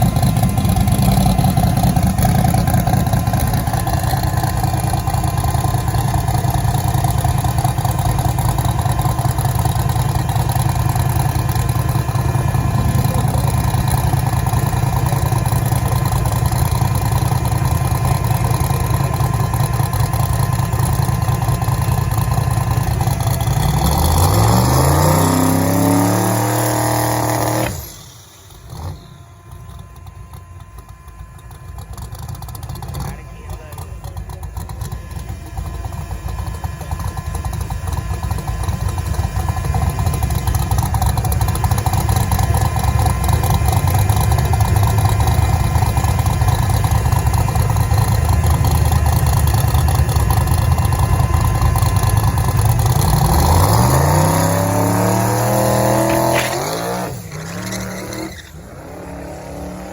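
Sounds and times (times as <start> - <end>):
engine running and revving: 0.0 - 59.9.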